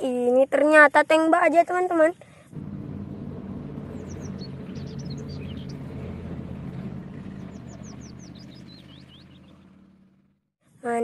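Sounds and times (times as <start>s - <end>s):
tank engine rumble: 2.5s - 10.5s.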